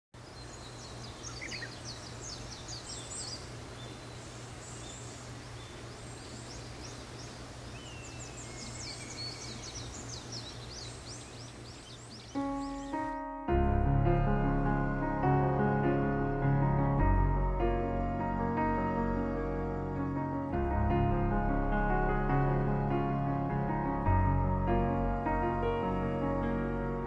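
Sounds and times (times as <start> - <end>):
birds singing and chirping: 0.2 - 13.2
forest ambience hum: 0.2 - 13.2
piano music: 12.4 - 27.0.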